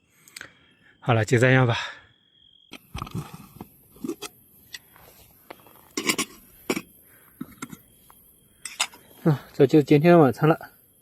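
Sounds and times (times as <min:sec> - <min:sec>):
metal utensil against pot: 0:06.0 - 0:06.9, 0:08.6 - 0:09.0.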